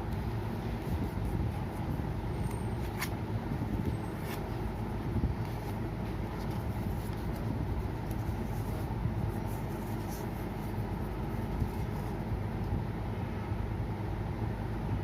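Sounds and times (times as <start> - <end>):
paper rustling: 5.4 - 12.2.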